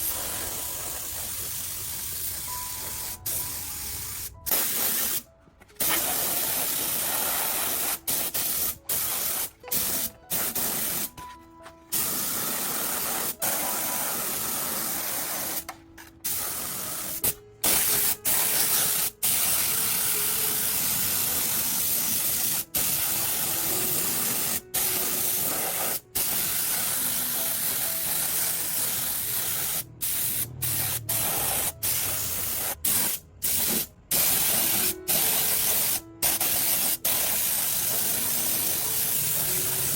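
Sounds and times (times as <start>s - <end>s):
spray hissing in bursts: 0.0s - 11.2s, 11.9s - 15.6s, 16.2s - 39.9s.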